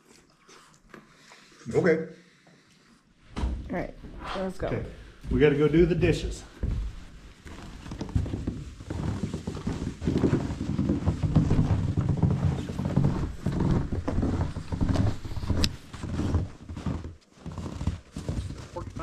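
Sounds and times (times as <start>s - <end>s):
footsteps crunching through snow: 6.5s - 19.0s.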